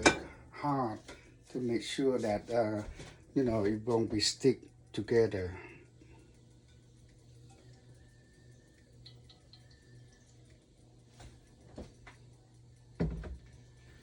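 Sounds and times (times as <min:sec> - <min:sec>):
oil ticking and popping in a pan: 0:00.0 - 0:14.0
steady low hum: 0:00.0 - 0:14.0.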